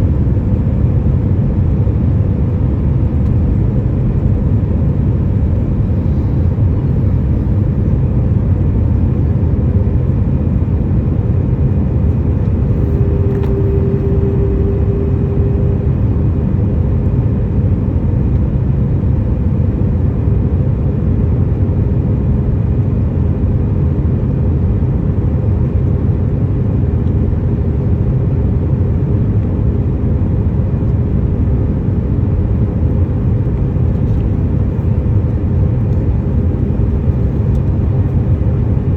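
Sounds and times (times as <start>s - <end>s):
airplane cabin engine drone: 0.0s - 38.9s
faint steady hum: 0.0s - 38.9s.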